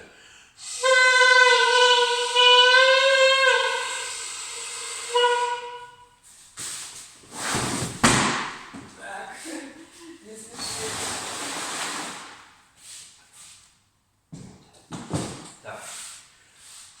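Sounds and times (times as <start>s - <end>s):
saxophone long note: 0.6s - 6.1s
breathy airy noise: 3.1s - 5.8s.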